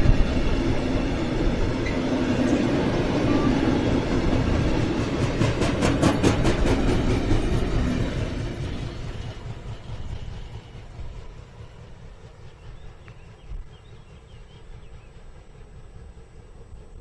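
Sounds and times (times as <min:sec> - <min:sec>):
wind on microphone: 0:00.0 - 0:01.8
freight train rumbling: 0:00.0 - 0:17.0.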